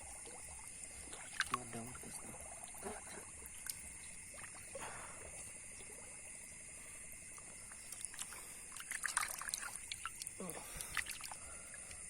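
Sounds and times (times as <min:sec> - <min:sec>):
sharp water splashes: 0:00.0 - 0:06.0, 0:07.8 - 0:11.4
night insects chorus: 0:00.0 - 0:12.0
water trickling and splashing: 0:00.0 - 0:12.0.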